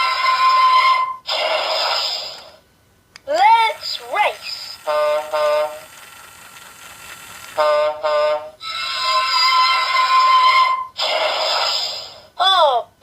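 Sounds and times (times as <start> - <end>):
toy horn honk: 4.8 - 5.9, 7.6 - 10.9.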